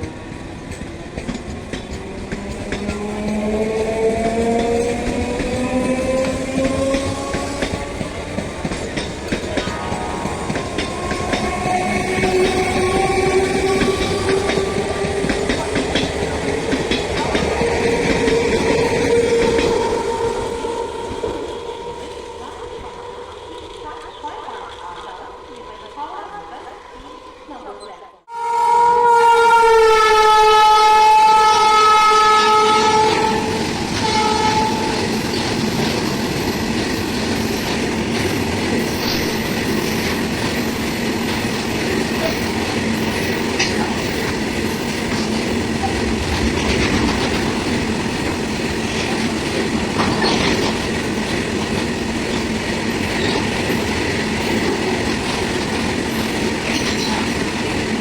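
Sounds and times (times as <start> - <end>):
train rumbling and clacking: 0.0 - 28.3, 29.3 - 58.0
train horn blasts: 9.4 - 15.1, 28.3 - 35.5.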